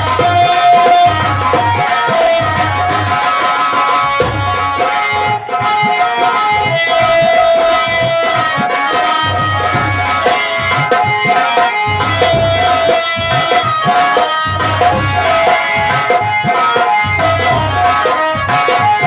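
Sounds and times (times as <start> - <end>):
drum strokes with deep bass hits: 0.0 - 19.0
sustained melody line: 0.0 - 19.0.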